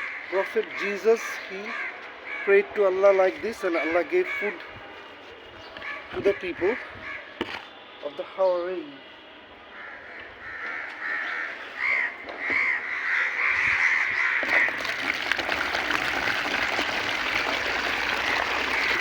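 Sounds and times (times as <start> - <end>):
crows cawing: 0.0 - 2.6, 5.8 - 7.3, 9.7 - 14.8.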